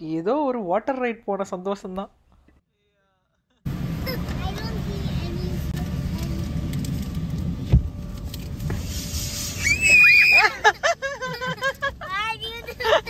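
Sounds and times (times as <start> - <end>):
car wash rumble: 3.7 - 13.0
child squealing: 9.6 - 10.6
child excited voice sounds: 12.0 - 13.0.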